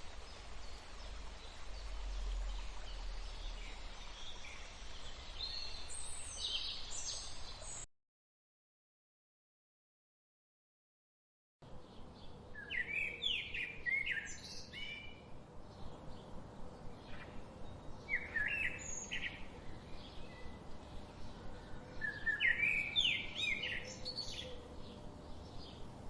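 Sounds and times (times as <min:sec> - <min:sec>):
faint background noise: 0:00.0 - 0:07.9, 0:11.6 - 0:26.0
songbird whistling: 0:22.0 - 0:24.6.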